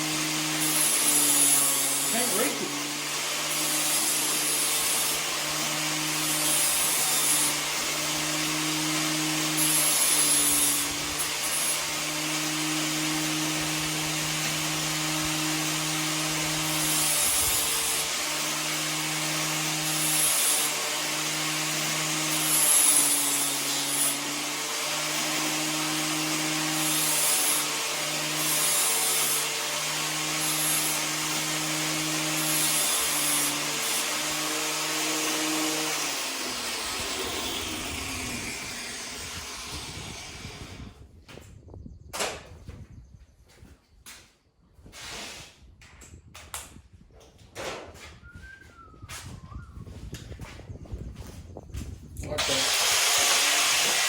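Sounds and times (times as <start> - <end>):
power tool humming drone: 0.0 - 41.0, 52.3 - 54.0.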